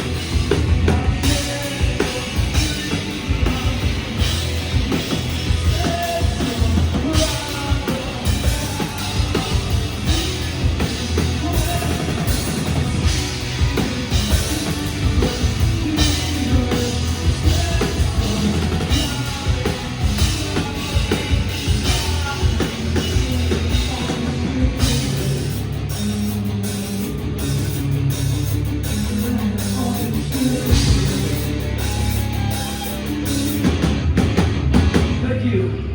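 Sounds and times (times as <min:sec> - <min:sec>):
hard rock band playing: 0:00.0 - 0:35.9
person singing: 0:00.8 - 0:10.4, 0:11.1 - 0:13.1, 0:14.1 - 0:25.6, 0:28.8 - 0:33.7.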